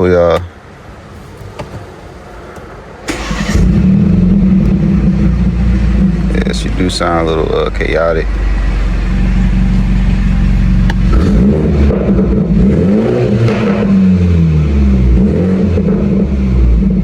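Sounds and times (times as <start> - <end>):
car engine idling and revving: 3.1 - 17.0.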